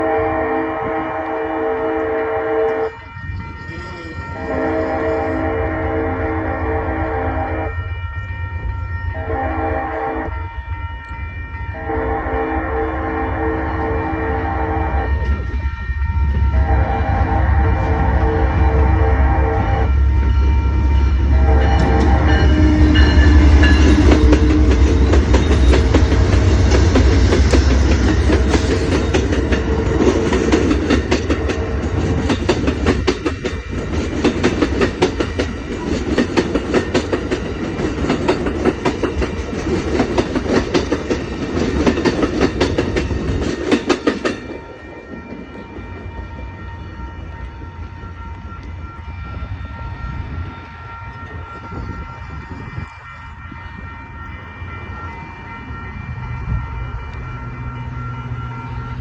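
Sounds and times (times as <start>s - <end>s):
train horn blast: 0.0s - 8.1s, 9.0s - 10.8s, 11.5s - 32.3s, 44.5s - 59.0s
diesel locomotive rumble: 11.6s - 44.8s
train wheels clacking over rail joints: 21.7s - 44.6s.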